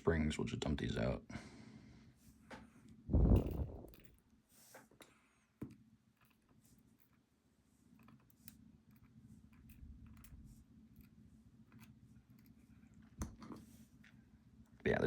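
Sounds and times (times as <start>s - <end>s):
small metal lock parts clicking: 6.2s - 7.2s, 8.0s - 13.6s.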